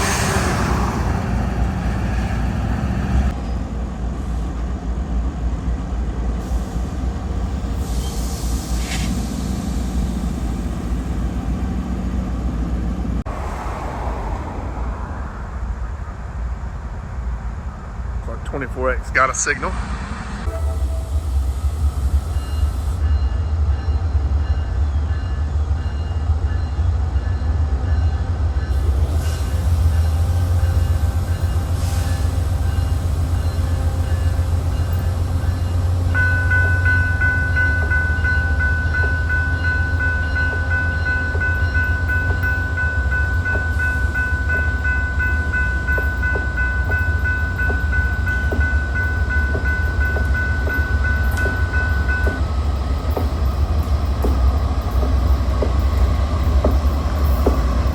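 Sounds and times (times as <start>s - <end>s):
freight train rumbling past: 0.0s - 57.9s
high ringing tone: 32.7s - 52.5s.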